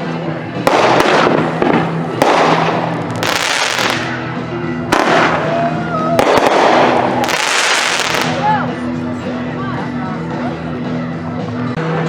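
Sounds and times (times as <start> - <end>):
firework crackling: 0.6 - 4.3, 4.9 - 8.5
firework bangs: 0.6 - 5.5, 6.2 - 8.4.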